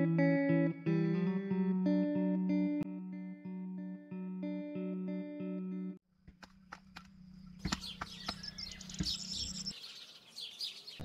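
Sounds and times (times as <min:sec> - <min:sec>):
plucked guitar music: 0:00.0 - 0:06.0
sharp knocks and clicks: 0:06.2 - 0:09.5
birds chirping: 0:06.6 - 0:11.0.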